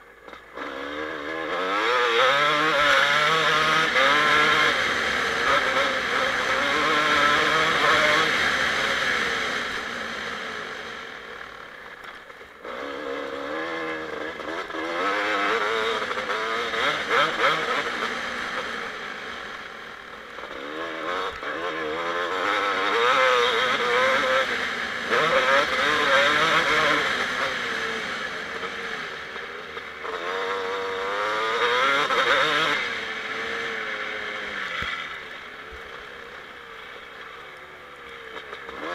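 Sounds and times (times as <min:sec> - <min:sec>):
motocross engine revving: 0:00.3 - 0:11.2, 0:12.6 - 0:38.9.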